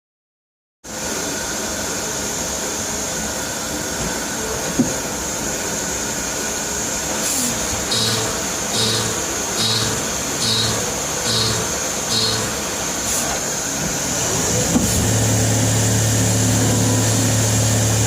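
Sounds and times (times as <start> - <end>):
machine humming with high whine: 6.7 - 18.0.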